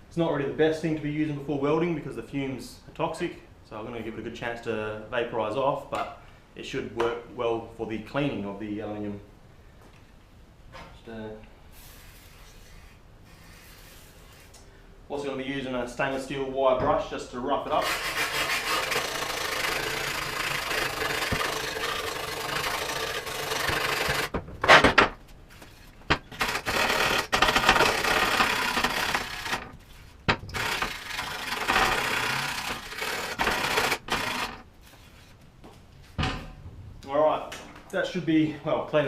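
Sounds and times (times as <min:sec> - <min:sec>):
wire brush scrubbing metal: 0:17.7 - 0:24.3, 0:25.7 - 0:35.4.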